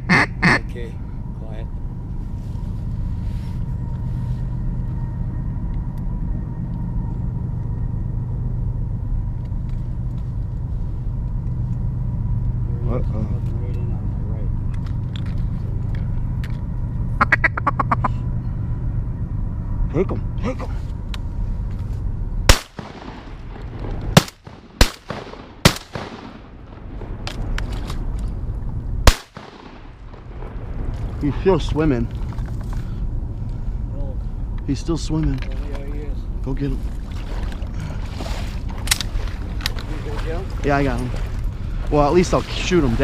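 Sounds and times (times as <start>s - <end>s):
low motor hum: 0.0s - 43.0s
shotgun shots with echo: 22.5s - 26.5s, 29.0s - 30.2s.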